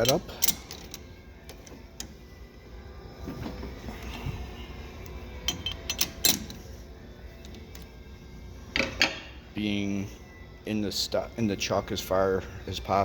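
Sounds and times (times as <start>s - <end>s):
metal parts clinking: 0.0s - 2.0s, 5.4s - 6.7s
low shop hum: 0.0s - 13.0s.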